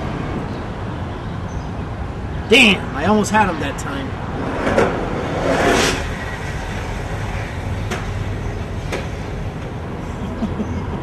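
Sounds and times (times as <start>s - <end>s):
traffic rumble: 0.0s - 11.0s
vehicle whooshing past: 4.0s - 10.0s.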